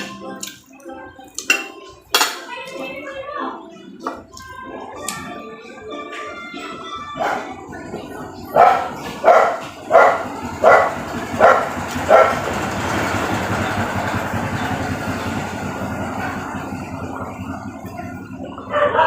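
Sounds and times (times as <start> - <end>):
dog barking: 7.2 - 7.5, 8.5 - 12.4, 18.6 - 19.0.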